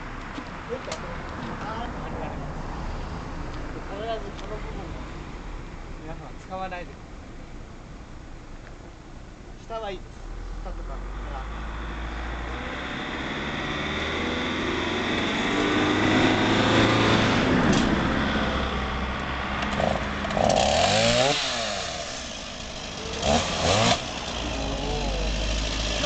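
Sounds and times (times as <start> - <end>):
chainsaw engine revving: 19.7 - 26.0.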